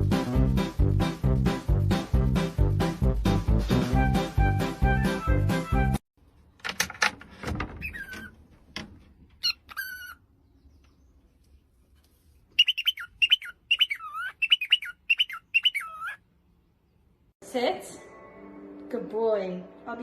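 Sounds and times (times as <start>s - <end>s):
bird chirping and whistling: 12.6s - 16.2s.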